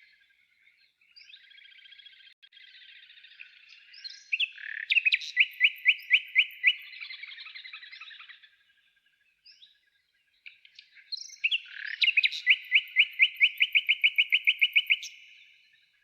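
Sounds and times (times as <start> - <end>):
faint bird chirps: 0.0 - 16.0
songbird singing: 0.0 - 16.0.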